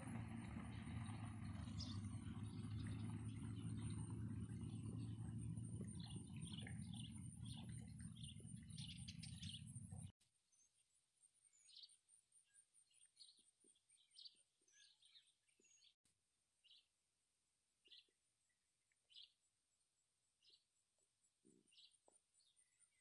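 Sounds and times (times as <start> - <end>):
low hum: 0.0 - 10.1
faint small bird chirps: 5.4 - 16.0, 17.8 - 19.5, 20.4 - 23.0.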